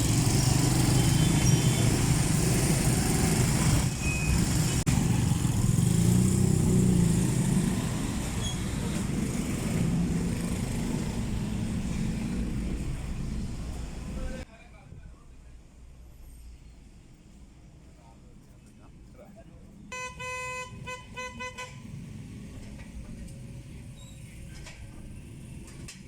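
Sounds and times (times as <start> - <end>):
vehicle engine and road noise: 0.0 - 26.0.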